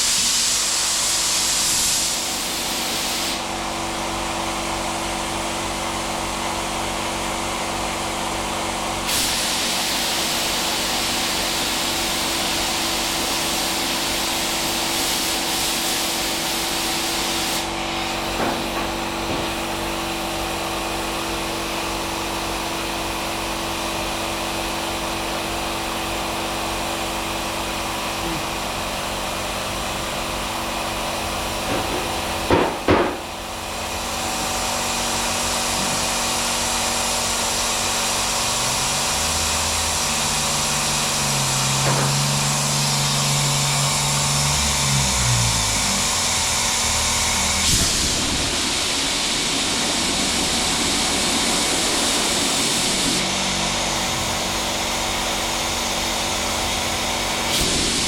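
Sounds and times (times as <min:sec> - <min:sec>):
power tool running: 0:00.0 - 0:58.0
sharp knocks: 0:31.6 - 0:33.2.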